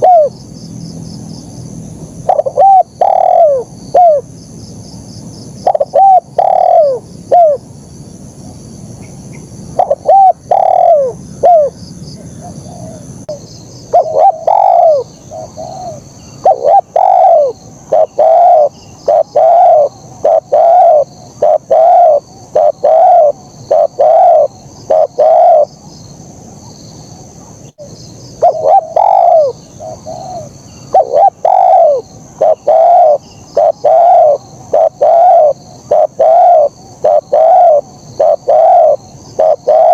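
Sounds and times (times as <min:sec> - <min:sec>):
dove cooing: 0:00.0 - 0:00.4, 0:02.2 - 0:04.3, 0:05.6 - 0:07.6, 0:09.7 - 0:25.7, 0:28.4 - 0:39.9
faint high-pitched chirring: 0:00.0 - 0:39.9.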